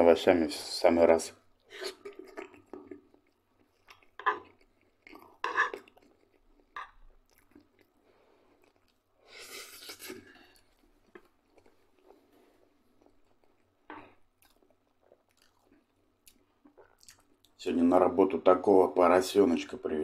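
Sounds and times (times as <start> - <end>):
wet mouth noises: 1.6 - 8.0
man chewing: 1.6 - 17.6.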